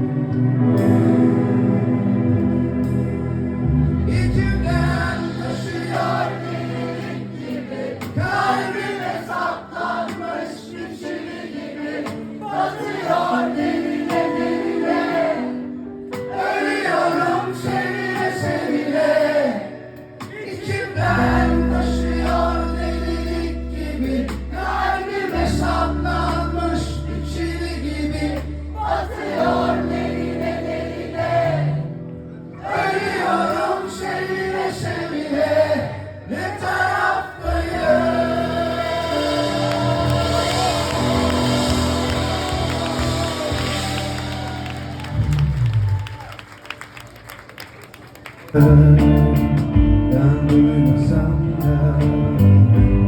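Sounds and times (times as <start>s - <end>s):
deep sustained bass notes: 0.0s - 5.7s, 21.1s - 28.8s, 48.6s - 53.0s
live band music: 0.0s - 10.4s, 37.8s - 45.8s, 48.6s - 53.0s
person singing: 3.7s - 31.8s, 32.6s - 45.2s, 48.5s - 53.0s.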